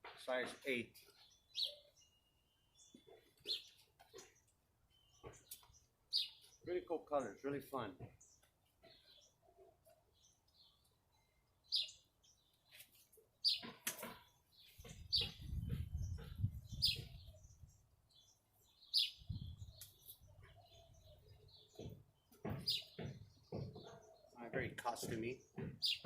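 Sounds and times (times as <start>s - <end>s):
high bird-like chirps: 1.2s - 6.7s, 14.6s - 17.8s.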